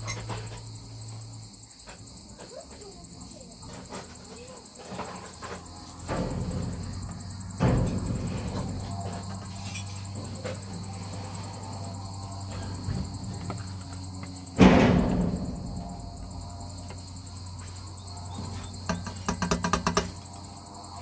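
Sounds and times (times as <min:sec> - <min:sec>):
crickets chirping: 0:00.0 - 0:21.0
loud ringing knock: 0:06.1 - 0:09.6, 0:14.6 - 0:17.3, 0:18.8 - 0:20.2.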